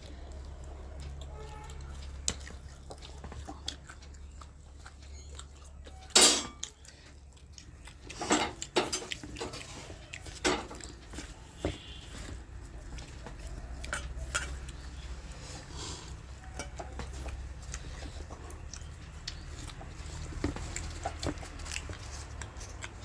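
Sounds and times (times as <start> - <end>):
dishes and utensils clattering: 6.0 - 6.8, 8.1 - 11.9, 13.8 - 14.7, 16.3 - 17.6.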